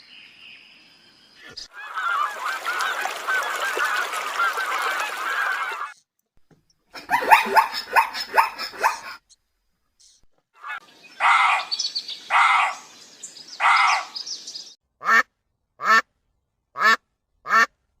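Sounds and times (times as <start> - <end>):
short falling animal calls: 1.7 - 6.0.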